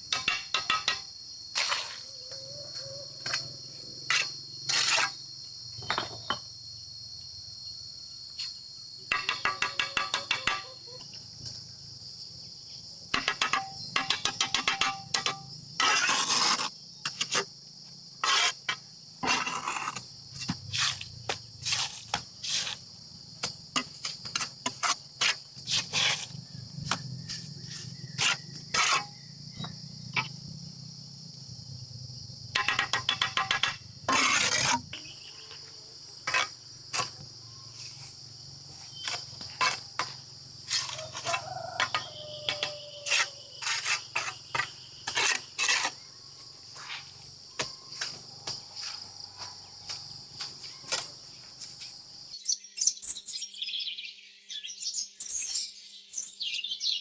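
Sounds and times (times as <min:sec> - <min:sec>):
knocks and clatters of hand work: 0:00.0 - 0:01.1, 0:05.8 - 0:06.5, 0:09.1 - 0:11.6, 0:13.1 - 0:15.5, 0:32.5 - 0:35.7, 0:38.8 - 0:46.0, 0:46.7 - 0:52.0
insect chorus: 0:00.0 - 0:57.0.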